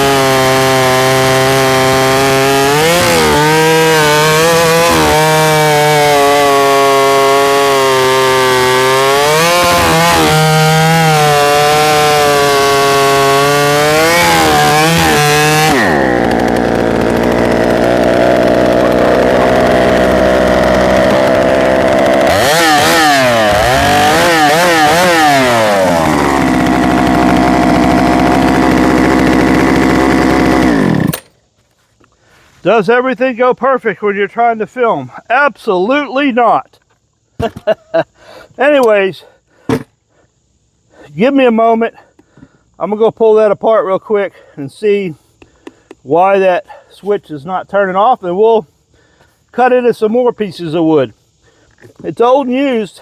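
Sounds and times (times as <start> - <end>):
chainsaw idling and revving: 0.0 - 31.3
chainsaw cutting wood: 0.0 - 31.4.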